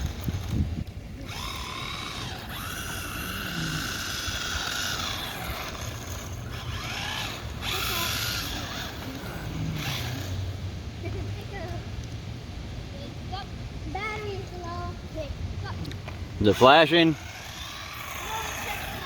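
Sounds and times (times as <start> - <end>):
electric motor whining: 0.0 - 10.6, 15.8 - 19.0.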